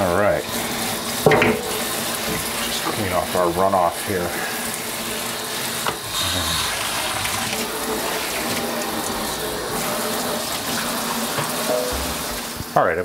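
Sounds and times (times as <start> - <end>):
tap water splashing into sink: 1.1 - 3.1, 5.8 - 6.0, 7.0 - 12.7.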